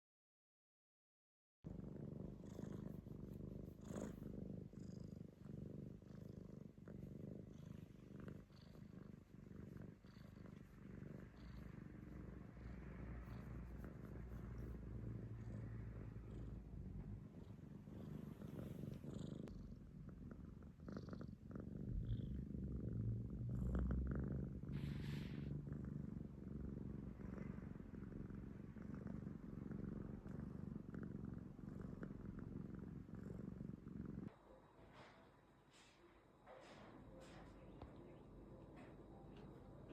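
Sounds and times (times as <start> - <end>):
cat purring: 1.7 - 39.9.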